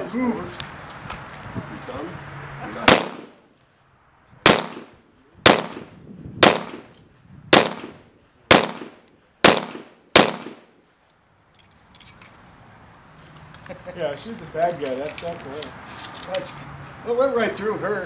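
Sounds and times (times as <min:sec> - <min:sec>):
pistol shots: 0:02.8 - 0:03.4, 0:04.4 - 0:10.8.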